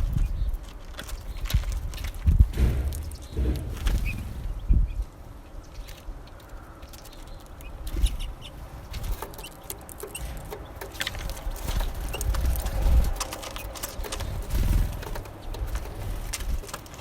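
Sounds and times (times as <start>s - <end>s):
sharp clicks and knocks: 1.0s - 4.3s, 6.9s - 17.0s
low rumbling thumps: 2.2s - 5.8s, 10.2s - 13.4s.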